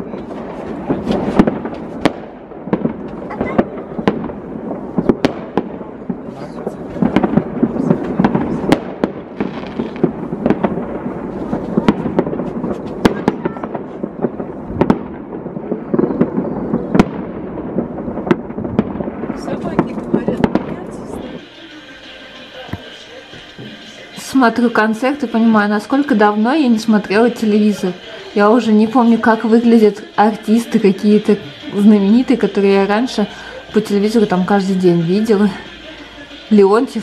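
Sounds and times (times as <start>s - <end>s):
rumble and crackle of distant explosions: 0.0s - 21.8s, 22.4s - 37.0s
fireworks sharp bangs: 0.0s - 37.0s.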